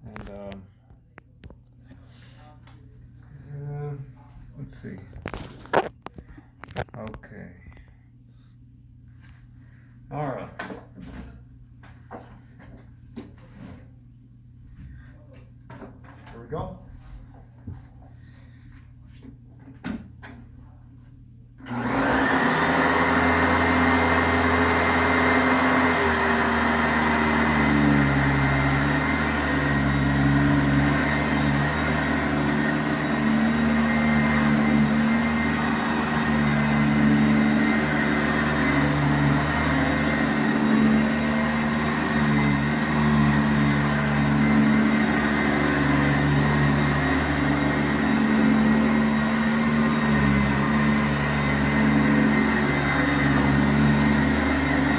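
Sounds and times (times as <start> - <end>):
upright vacuum cleaner running: 21.6 - 54.9.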